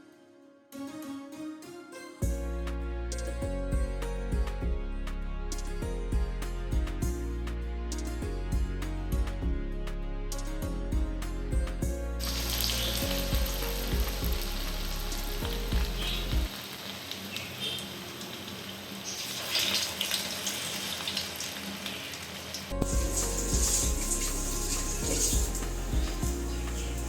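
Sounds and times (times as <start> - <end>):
background music: 0.0 - 16.5, 22.7 - 27.0
food deep-frying in hot oil: 12.2 - 27.0.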